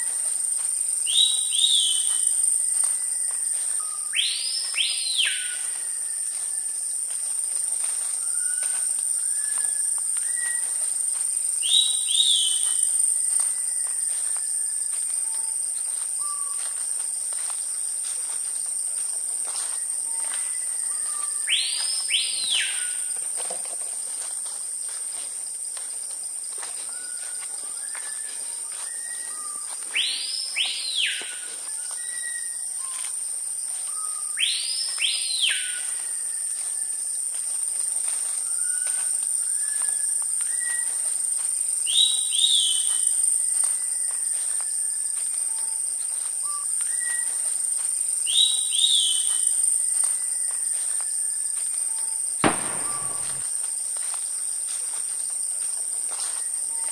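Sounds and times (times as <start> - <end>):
high-pitched insect drone: 0.0 - 25.0, 26.5 - 56.9
bird whistled calls: 1.1 - 6.6, 8.2 - 10.8, 11.6 - 15.5, 20.1 - 23.1, 26.9 - 33.0, 33.9 - 36.5, 38.4 - 41.0, 41.9 - 45.6, 46.4 - 47.4, 48.2 - 51.1, 51.9 - 53.4.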